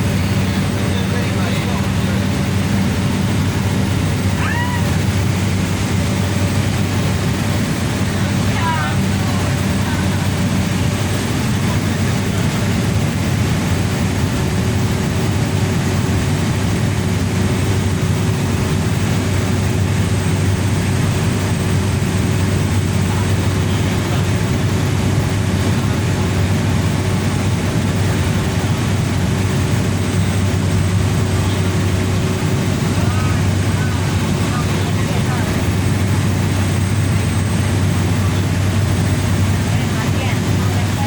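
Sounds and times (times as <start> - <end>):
rushing noise: 0.0 - 12.4
propeller plane cabin drone: 0.0 - 41.0.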